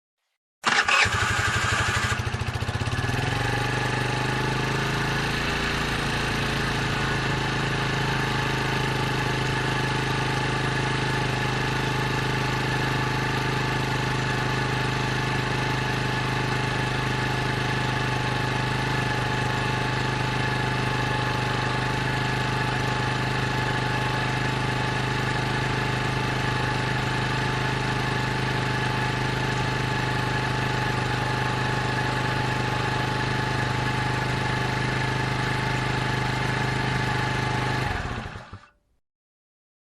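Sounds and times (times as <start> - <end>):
scooter engine cranking: 0.6 - 3.5
scooter engine idling: 0.6 - 38.7.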